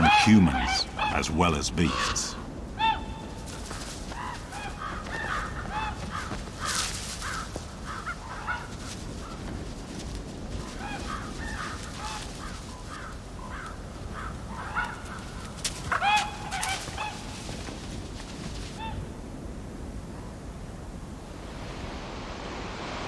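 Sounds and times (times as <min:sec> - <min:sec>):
crows cawing: 0:00.0 - 0:09.6, 0:10.6 - 0:17.6.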